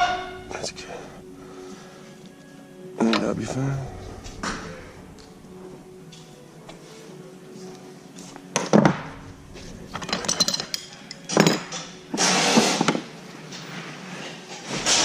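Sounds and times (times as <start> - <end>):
faint background music: 0.0 - 15.0
metal fittings and tools clinking: 9.6 - 13.0.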